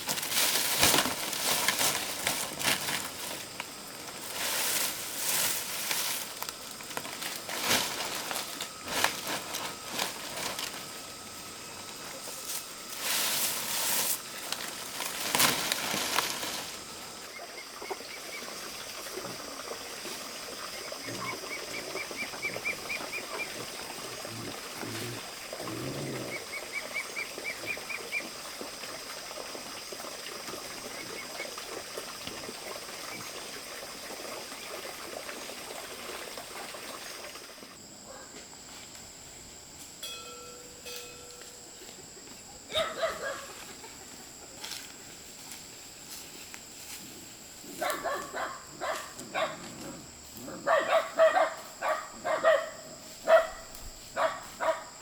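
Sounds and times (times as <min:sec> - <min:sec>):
high insect drone: 0:00.0 - 0:55.0
low animal sounds: 0:24.0 - 0:26.5.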